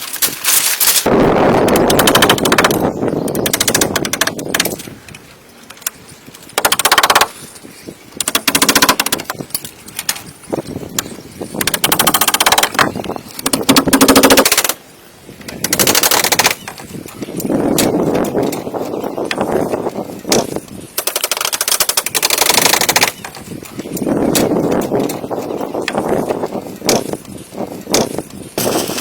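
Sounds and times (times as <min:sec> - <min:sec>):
power tool rattling: 0:01.6 - 0:04.8, 0:06.5 - 0:07.4, 0:08.2 - 0:10.4, 0:11.6 - 0:14.8, 0:15.5 - 0:19.4, 0:20.3 - 0:27.2, 0:27.9 - 0:29.0.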